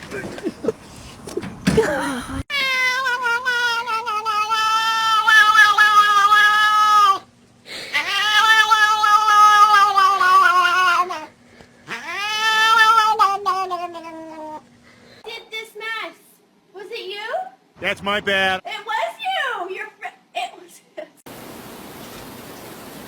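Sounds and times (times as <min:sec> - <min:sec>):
cat yowling: 0:02.5 - 0:07.3, 0:07.9 - 0:11.3, 0:11.9 - 0:14.6.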